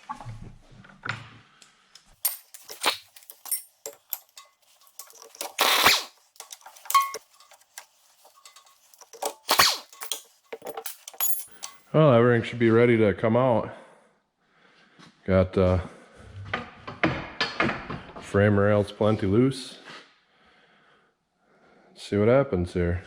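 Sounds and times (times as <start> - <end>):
hand tools clanking on metal: 2.2 - 11.9.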